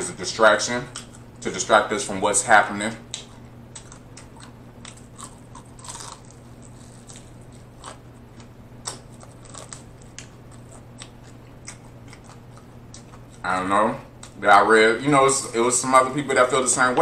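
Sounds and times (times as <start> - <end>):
chewing crispy chicken: 3.0 - 13.5.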